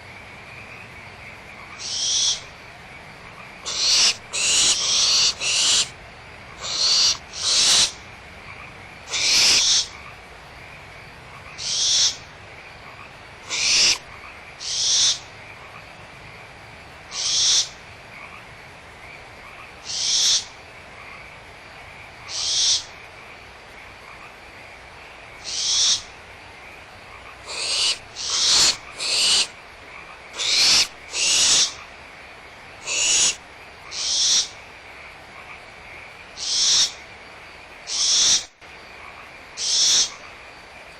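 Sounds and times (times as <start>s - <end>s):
owlets hissing: 3.7s - 5.9s, 6.6s - 8.0s, 9.1s - 9.9s, 13.5s - 14.0s, 27.5s - 29.5s, 30.4s - 31.8s, 32.8s - 33.4s.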